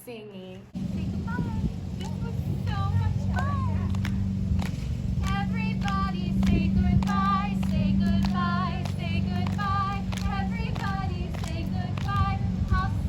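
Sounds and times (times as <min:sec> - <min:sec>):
steady low hum: 0:00.7 - 0:13.0
voices singing: 0:00.8 - 0:13.0
hand claps: 0:03.3 - 0:12.9.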